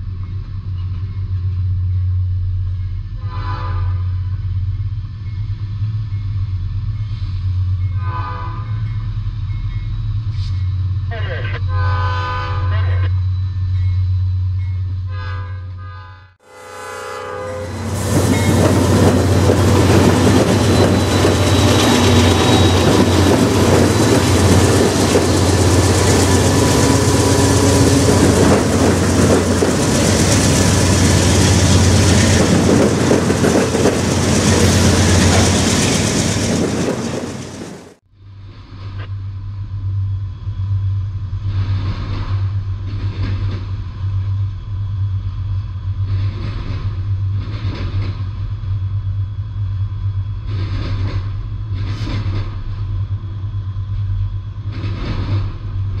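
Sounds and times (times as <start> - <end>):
train wheels rumbling on rails: 0.0 - 15.1, 17.5 - 38.0, 38.6 - 56.0
muffled passing freight cars: 0.0 - 56.0
train horn blast: 3.2 - 4.4, 8.0 - 8.8, 11.6 - 13.1, 15.1 - 18.0, 25.4 - 28.8
steady low hum: 38.1 - 56.0.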